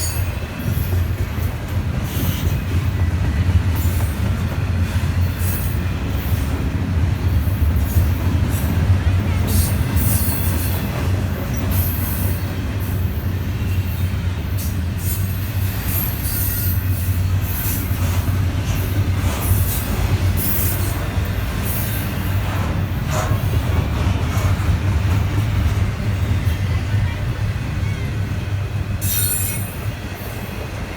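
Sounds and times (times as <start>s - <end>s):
train rumbling past: 0.0s - 30.9s
high-pitched wheel squeals: 15.8s - 17.7s, 29.0s - 29.9s.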